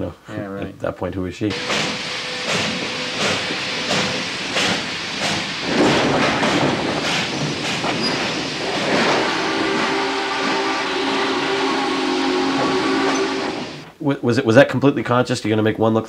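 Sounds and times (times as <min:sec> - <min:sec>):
train wheels clacking over rail joints: 0:01.5 - 0:13.9
steady hiss: 0:01.5 - 0:14.2.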